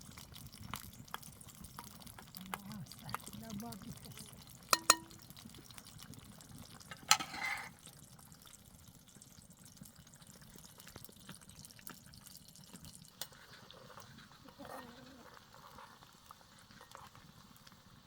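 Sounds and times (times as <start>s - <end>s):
faint clicks and drips: 0.0s - 18.0s
liquid being poured: 1.2s - 5.7s
sharp clink: 4.8s - 5.2s.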